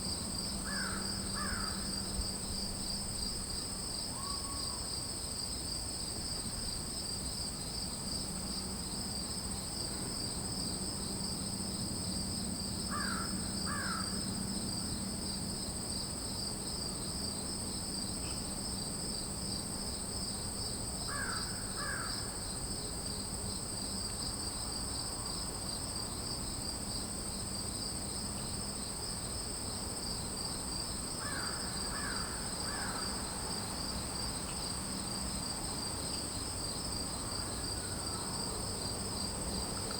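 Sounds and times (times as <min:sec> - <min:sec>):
crickets and insects trilling: 0:00.0 - 0:39.9.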